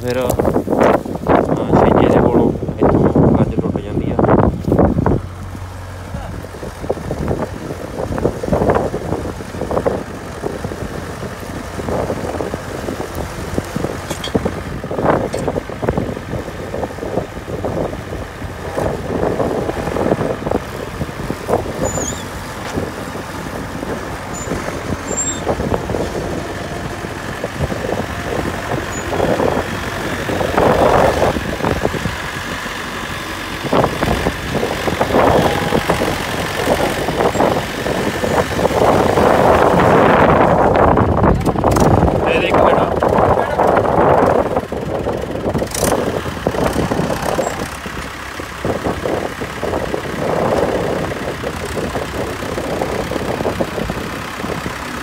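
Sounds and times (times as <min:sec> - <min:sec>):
tractor engine running: 0:00.0 - 0:55.0
implement clattering and knocking: 0:14.0 - 0:14.5.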